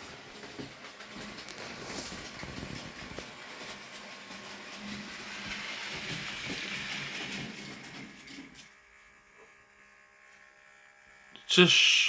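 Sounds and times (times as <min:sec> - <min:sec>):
model train wheels clicking over track: 0:00.0 - 0:08.8.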